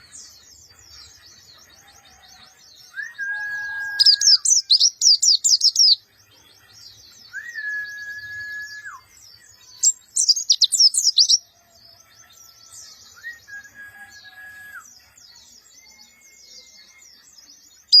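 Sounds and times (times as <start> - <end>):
long flat whistle: 2.9 - 4.5, 7.3 - 9.1, 13.2 - 14.8.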